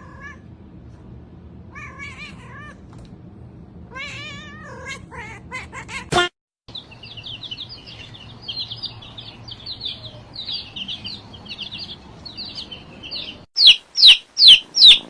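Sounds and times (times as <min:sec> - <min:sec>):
small bird chirping: 0:06.7 - 0:15.0.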